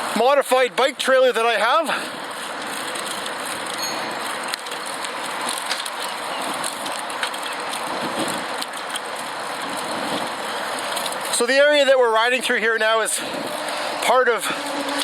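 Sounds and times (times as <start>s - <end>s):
bicycle rushing hiss: 13.1s - 15.0s.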